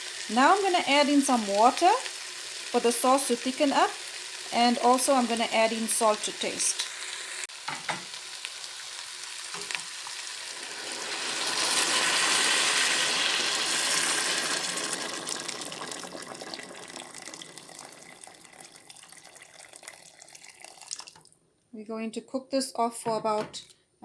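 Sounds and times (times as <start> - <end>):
water pouring into hot pot hissing: 0.0 - 0.4, 1.7 - 2.8, 3.9 - 4.5, 10.0 - 21.2.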